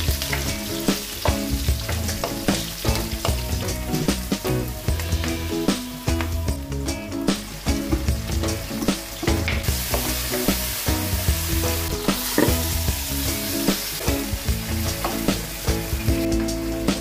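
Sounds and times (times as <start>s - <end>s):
food sizzling in hot oil: 0.0s - 17.0s
utensil knocking and scraping pan: 12.1s - 12.7s.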